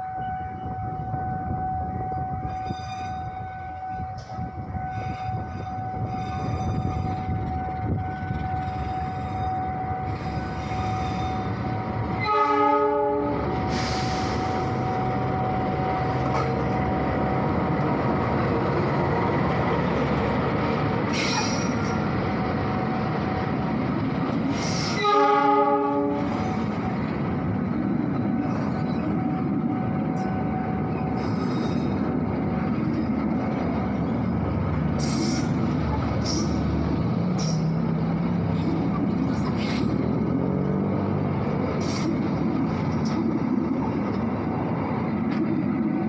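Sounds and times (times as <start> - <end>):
train horn: 0.0 - 16.3, 24.6 - 26.6
train running along track: 0.0 - 46.0.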